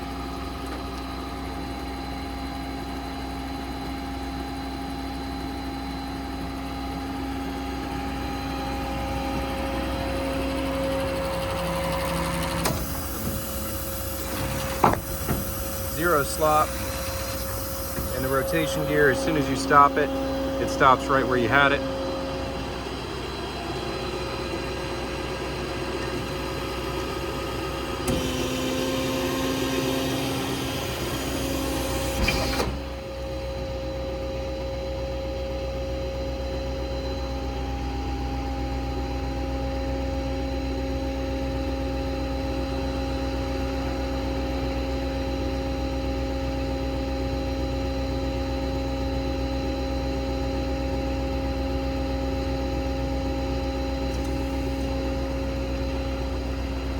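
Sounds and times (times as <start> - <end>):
diesel and hydraulics humming: 0.0 - 56.9
loud hydraulic rushing noise: 12.1 - 24.3.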